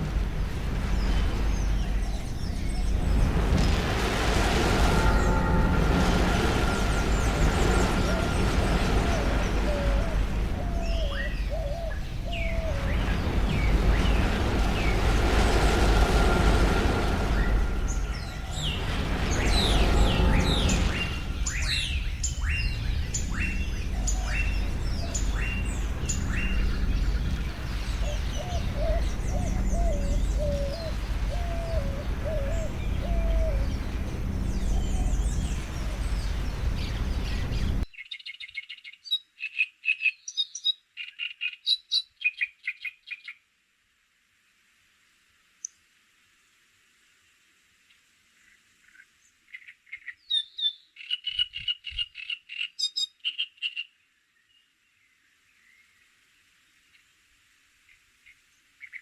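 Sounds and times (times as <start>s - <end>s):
birds calling: 0.0s - 37.8s.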